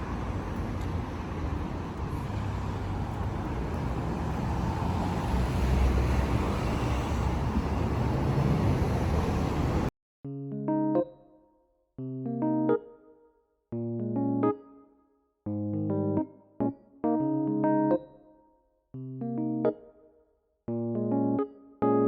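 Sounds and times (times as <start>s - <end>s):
road traffic rumble: 0.0s - 9.9s.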